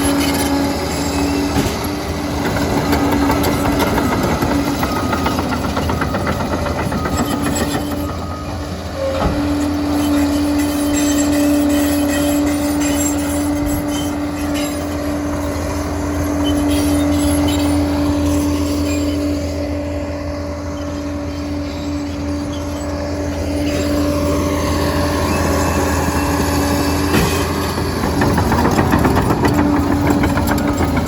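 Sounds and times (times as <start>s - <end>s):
dozer engine rumble: 0.0s - 31.0s
steady machine whine: 0.0s - 31.0s.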